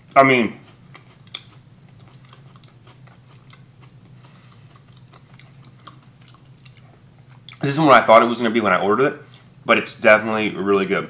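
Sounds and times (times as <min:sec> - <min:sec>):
low steady hum: 0:00.0 - 0:11.0
chewing crispy cracker: 0:00.6 - 0:07.7.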